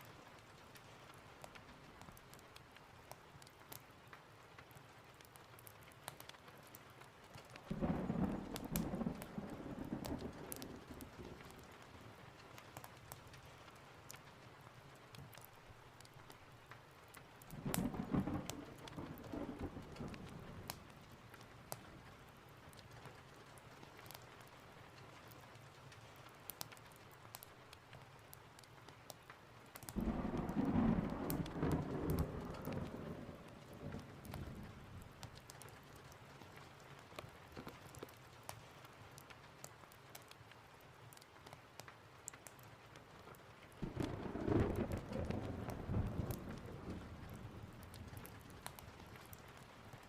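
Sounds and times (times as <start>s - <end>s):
small ticks and crackles: 0.0s - 50.0s
steady rain: 0.0s - 50.0s
rolling thunder: 7.7s - 11.6s, 17.6s - 20.8s, 30.0s - 35.2s, 43.8s - 49.2s.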